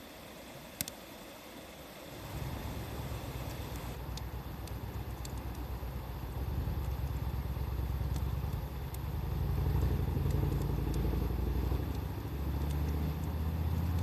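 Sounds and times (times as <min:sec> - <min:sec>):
wood fire crackles: 0:00.5 - 0:14.0
vehicle engine rumble: 0:03.8 - 0:14.0.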